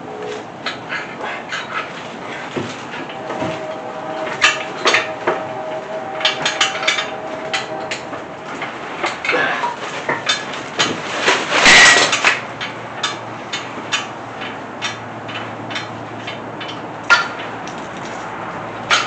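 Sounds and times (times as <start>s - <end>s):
metal grating scrape: 0.0s - 12.5s.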